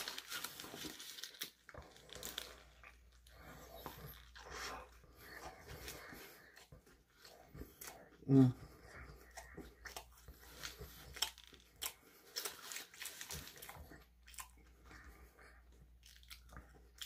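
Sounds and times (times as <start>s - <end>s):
paper wrapper crinkling: 0.0s - 4.6s, 10.5s - 13.9s
chewing food: 0.0s - 17.0s.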